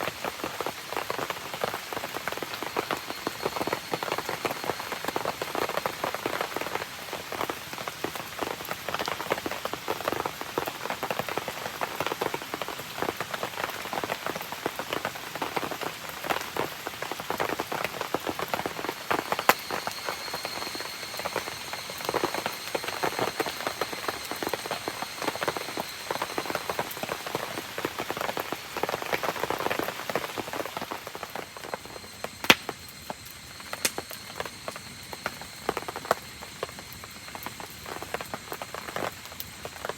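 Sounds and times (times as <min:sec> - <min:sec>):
rain pattering: 0:00.0 - 0:39.9
sharp snaps: 0:32.4 - 0:32.8, 0:33.8 - 0:34.0.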